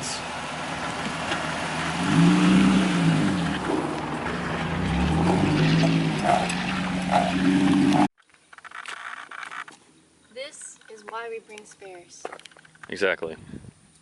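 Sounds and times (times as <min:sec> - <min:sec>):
car engine at low revs: 0:00.0 - 0:08.1
road and wind noise: 0:00.0 - 0:14.0.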